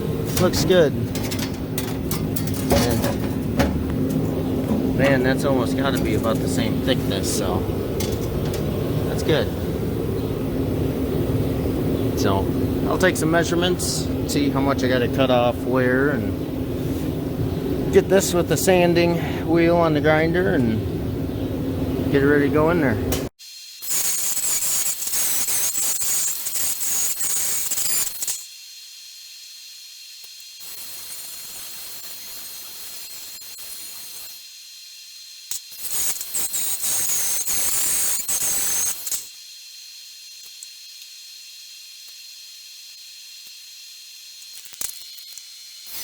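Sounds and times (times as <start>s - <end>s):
angle grinder grinding metal: 0.0s - 9.5s.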